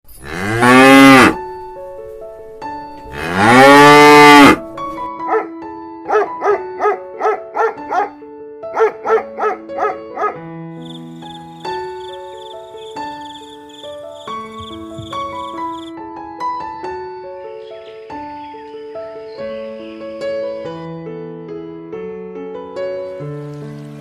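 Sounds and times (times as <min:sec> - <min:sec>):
background music: 0:00.1 - 0:24.0
cow mooing: 0:00.2 - 0:01.4, 0:03.1 - 0:04.6.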